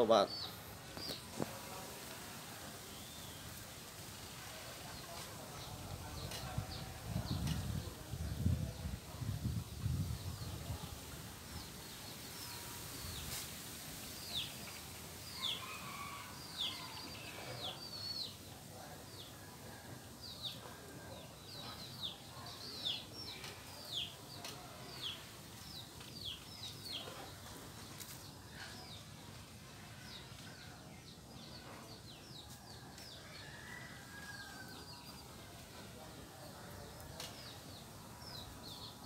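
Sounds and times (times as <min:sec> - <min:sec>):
birds chirping: 0:00.0 - 0:01.8.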